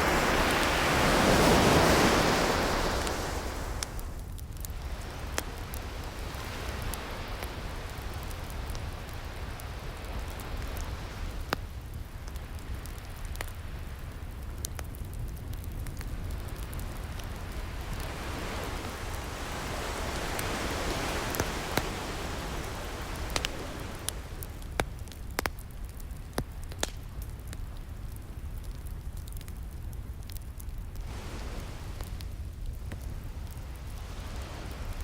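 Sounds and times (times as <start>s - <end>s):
wave breaking: 0.0s - 4.2s, 17.6s - 24.8s, 31.0s - 32.3s
ocean surf: 0.0s - 11.7s, 16.1s - 24.8s, 31.0s - 35.0s
wood fire crackling: 0.0s - 35.0s.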